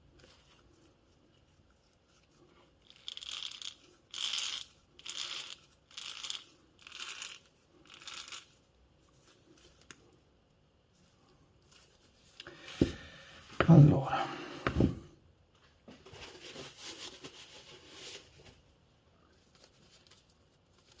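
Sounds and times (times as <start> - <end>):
rustling scraping strokes: 16.1 - 18.6.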